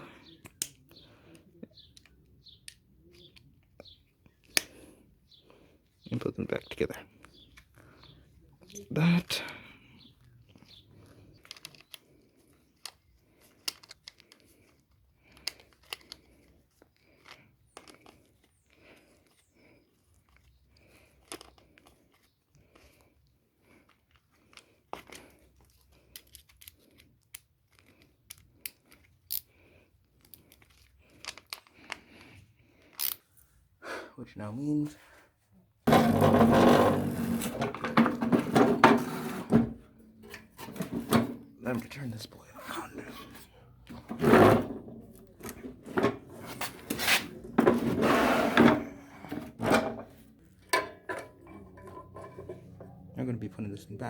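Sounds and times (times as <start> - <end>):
small parts clicking and tapping: 0.4 - 4.8, 10.2 - 33.2
lawn mower knocking and clunking: 35.9 - 39.2
lawn mower scraping: 35.9 - 42.0, 42.8 - 52.8.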